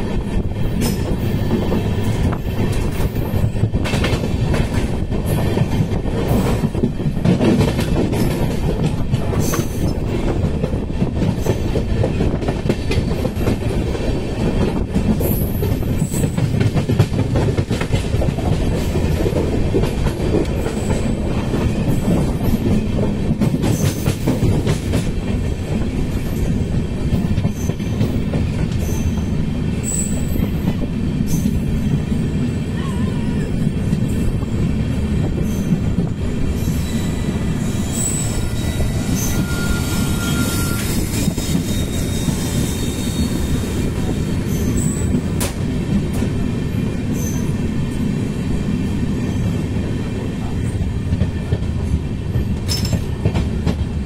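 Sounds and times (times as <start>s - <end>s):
train wheels rumbling on rail: 0.0s - 54.0s
wheels clacking over rail joints: 51.1s - 54.0s.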